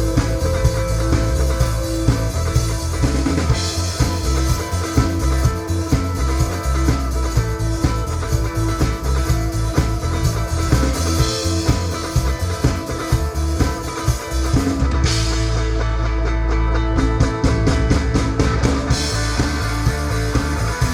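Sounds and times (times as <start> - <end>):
bass guitar: 0.0 - 20.9
drum kit beating: 0.0 - 20.9
electric guitar: 0.0 - 20.9.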